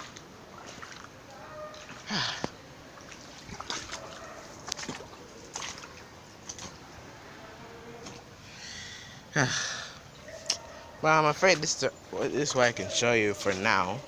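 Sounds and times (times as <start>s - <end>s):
boots splashing through water: 0.0s - 7.1s.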